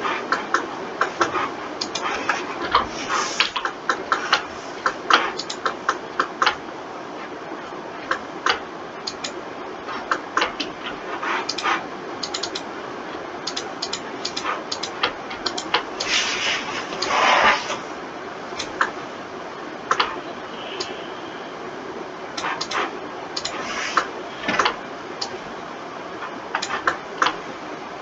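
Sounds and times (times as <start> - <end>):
steady background hiss: 0.0 - 28.0
mouse and keyboard clicking: 0.3 - 2.8, 3.4 - 6.6, 8.1 - 9.4, 11.4 - 12.7, 13.4 - 16.2, 19.9 - 20.2, 22.4 - 25.4, 26.6 - 27.4.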